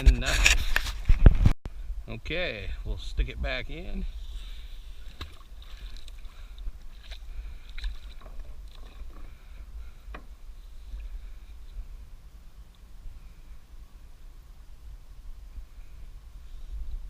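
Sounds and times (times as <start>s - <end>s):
wind rumbling on microphone: 0.0s - 17.0s
water sloshing: 4.9s - 9.5s.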